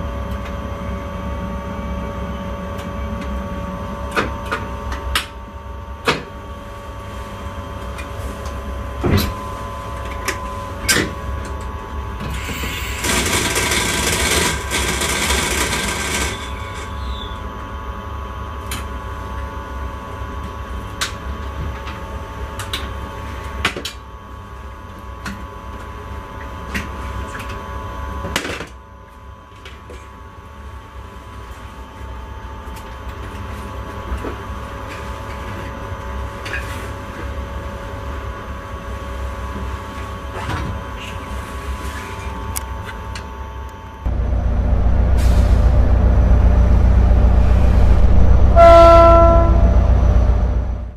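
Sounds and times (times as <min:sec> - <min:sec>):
electrical hum: 0:41.0 - 0:50.9
low rumble: 0:44.0 - 0:50.9.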